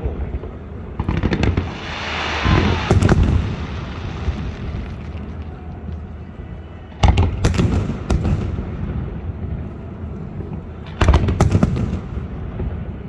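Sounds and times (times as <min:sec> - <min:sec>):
low rumble: 0:00.0 - 0:10.8
fireworks booming: 0:00.0 - 0:13.0.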